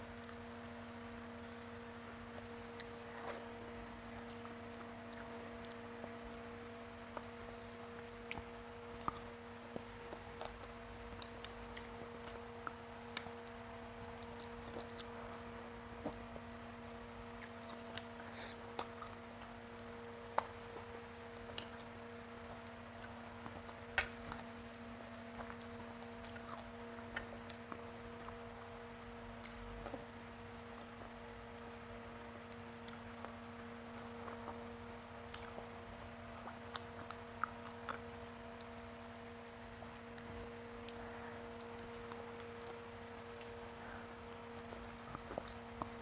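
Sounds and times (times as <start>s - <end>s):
steady low hum: 0.0s - 46.0s
chewing with wet smacks: 1.4s - 16.6s, 17.2s - 46.0s.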